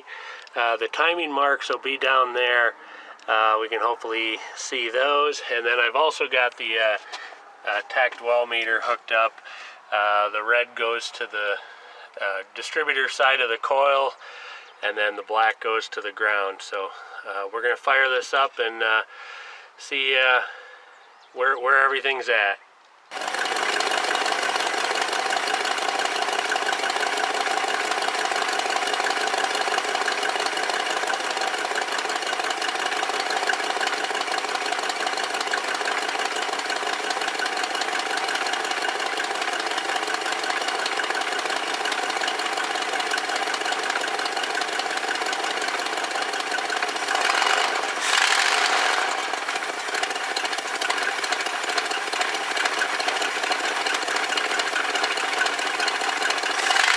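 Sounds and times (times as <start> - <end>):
car engine idling: 23.1 - 56.9.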